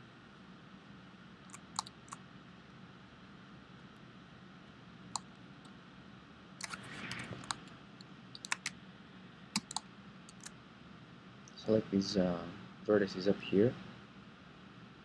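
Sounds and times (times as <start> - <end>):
low room hum: 0.0 - 15.0
computer mouse and keyboard clicks: 1.4 - 2.2, 6.6 - 8.8, 9.6 - 10.6.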